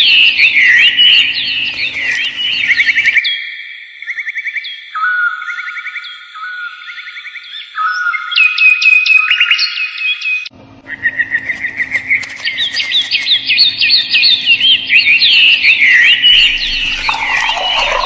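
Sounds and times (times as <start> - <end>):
birds chirping and twittering: 0.0 - 18.0
steady low hum: 10.6 - 18.0.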